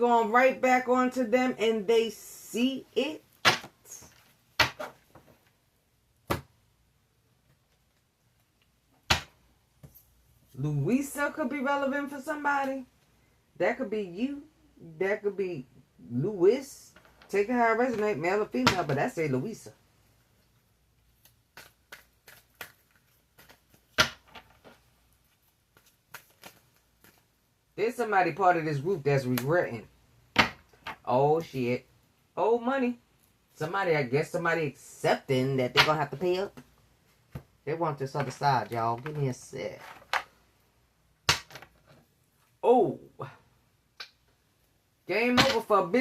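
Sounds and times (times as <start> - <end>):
cards snapping and slapping: 21.2 - 24.8, 25.7 - 27.2, 41.3 - 41.7.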